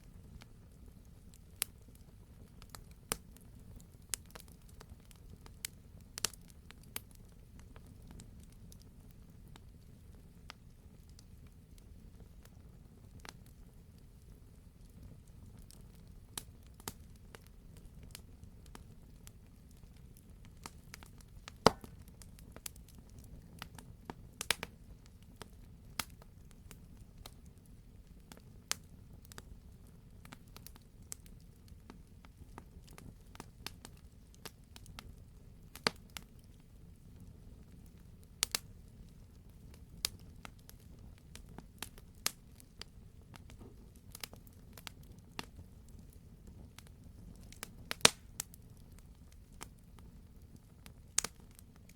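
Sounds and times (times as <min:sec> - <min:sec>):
fire popping and crackling: 0:00.0 - 0:51.9
wood fire burning: 0:00.0 - 0:51.9.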